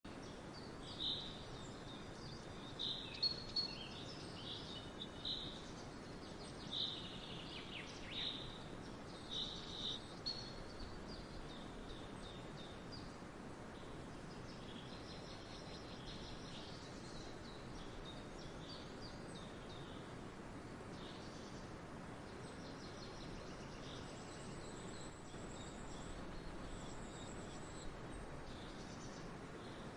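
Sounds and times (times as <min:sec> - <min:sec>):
small birds chirping: 0:00.1 - 0:29.9
steady background hiss: 0:00.1 - 0:29.9.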